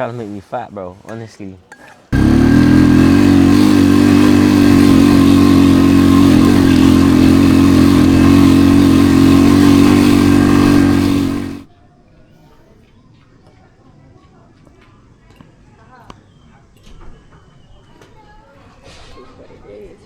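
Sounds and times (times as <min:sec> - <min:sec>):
small engine running steady: 0:02.1 - 0:11.7.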